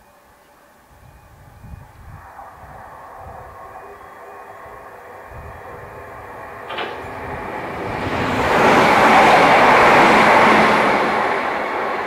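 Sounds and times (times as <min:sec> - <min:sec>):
train wheels on rail: 0:05.6 - 0:12.0.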